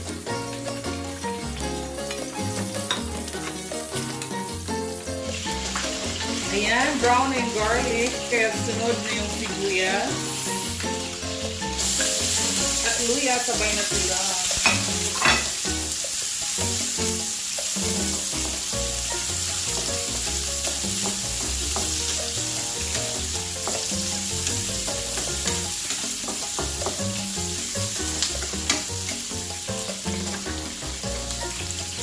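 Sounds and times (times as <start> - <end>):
food sizzling in oil: 0.0 - 32.0
utensil clicking against pan: 28.0 - 31.8.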